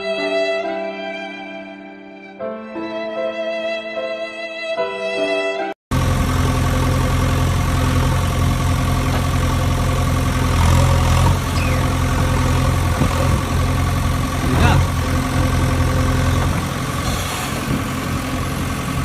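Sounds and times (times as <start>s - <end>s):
engine idling: 5.9s - 19.0s.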